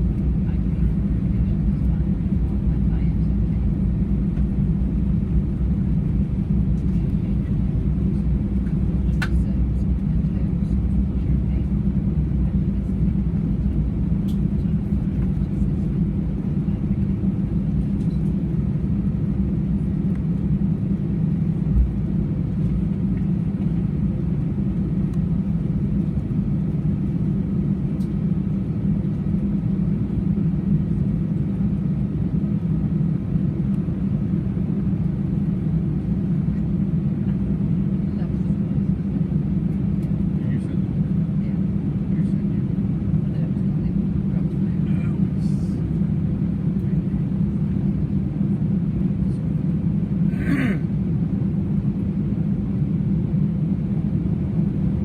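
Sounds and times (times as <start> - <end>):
airplane cabin rumble: 0.0 - 55.0.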